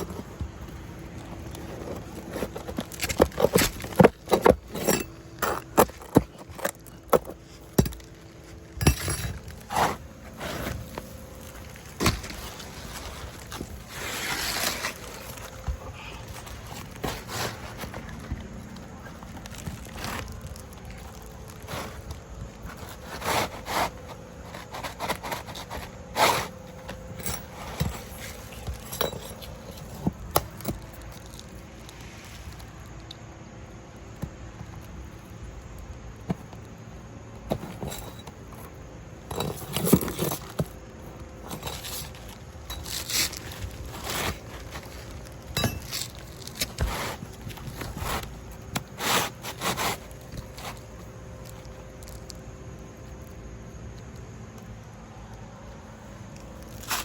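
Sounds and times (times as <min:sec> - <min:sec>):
hand tools scraping on shingles: 0:00.0 - 0:31.4, 0:39.2 - 0:40.7, 0:41.4 - 0:51.4.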